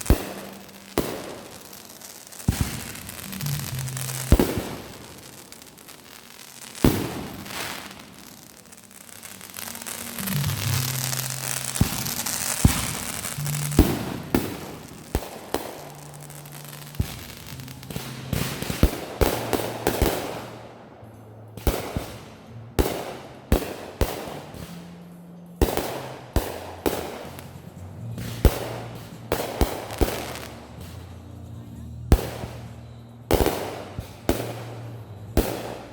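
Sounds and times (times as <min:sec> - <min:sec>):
fireworks hissing: 0:00.0 - 0:20.3, 0:25.8 - 0:31.2
fireworks sharp bangs: 0:00.0 - 0:20.7, 0:21.6 - 0:31.2, 0:32.1 - 0:35.9
music with bass line: 0:10.1 - 0:20.6.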